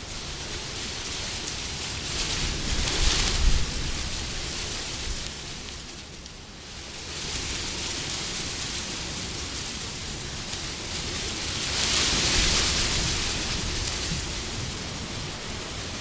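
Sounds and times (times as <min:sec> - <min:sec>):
wind blowing: 0:00.1 - 0:05.5.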